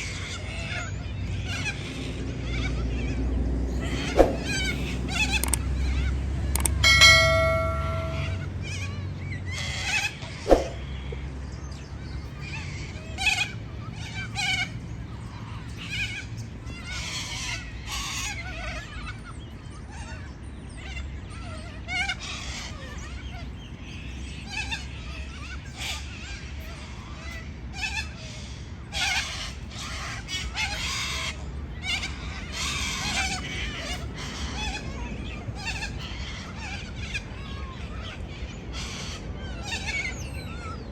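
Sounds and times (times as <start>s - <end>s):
parrots squawking: 1.5s - 8.4s
long steady parrot call: 6.6s - 8.5s.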